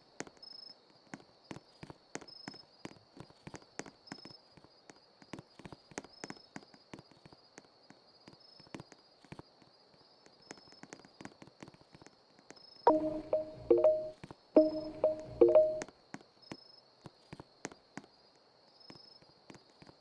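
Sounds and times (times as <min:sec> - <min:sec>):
faint irregular clicks and taps: 0:00.0 - 0:20.0
thin high-pitched tone: 0:12.9 - 0:15.8.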